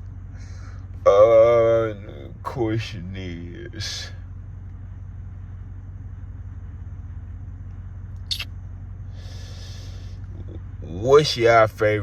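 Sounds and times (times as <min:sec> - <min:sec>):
car engine droning: 0:00.0 - 0:12.0
short click: 0:08.2 - 0:08.5.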